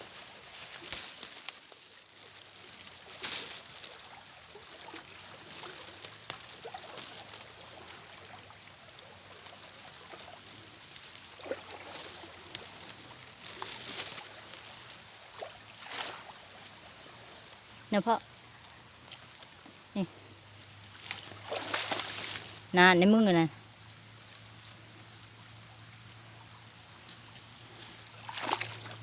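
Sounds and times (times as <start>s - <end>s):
water splashes: 0.0s - 18.2s, 20.9s - 22.8s, 27.2s - 29.0s
water trickling and sloshing: 0.0s - 29.0s.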